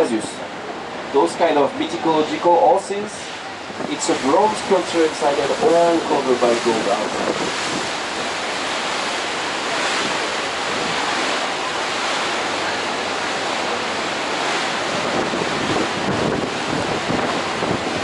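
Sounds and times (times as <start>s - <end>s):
rushing wind and water: 0.0s - 18.0s
wind buffeting microphone: 3.5s - 12.5s, 13.4s - 18.0s.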